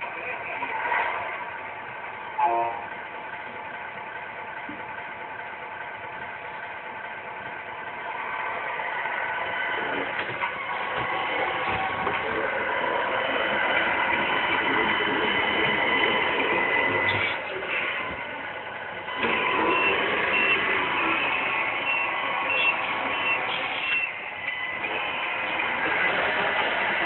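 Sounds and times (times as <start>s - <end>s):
toy truck mechanical whir: 8.0s - 27.0s.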